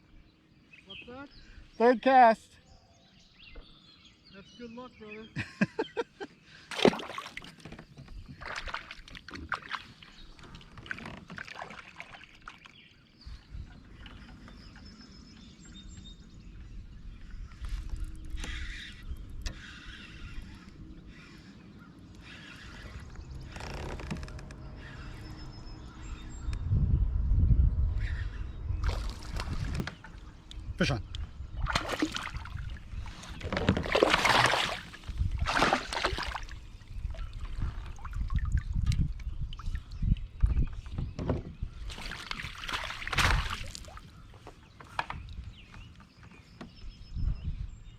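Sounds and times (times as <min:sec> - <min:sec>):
water splashes and knocks: 0:06.7 - 0:12.8, 0:28.8 - 0:30.3, 0:31.1 - 0:46.8
low rumble: 0:24.1 - 0:31.7.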